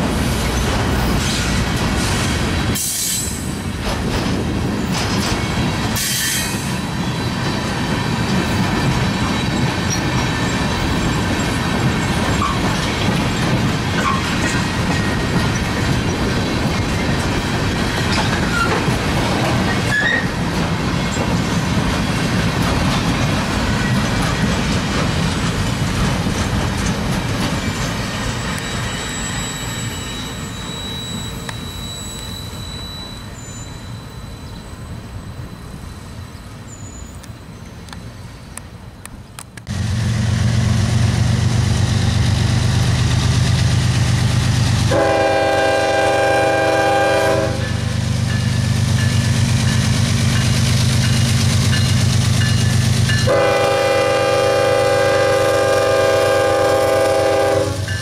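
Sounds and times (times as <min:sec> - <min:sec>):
diesel locomotive engine drone: 0:00.0 - 0:58.0
train cars rolling on jointed rail: 0:00.0 - 0:58.0
train air horn: 0:44.9 - 0:47.7, 0:53.2 - 0:57.9.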